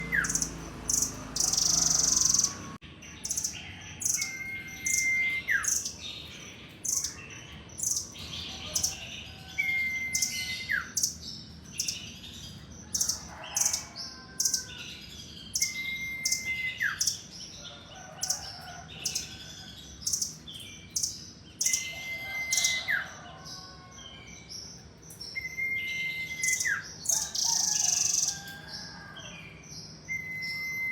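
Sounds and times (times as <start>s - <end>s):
bird long flat whistle: 30.1s - 30.9s.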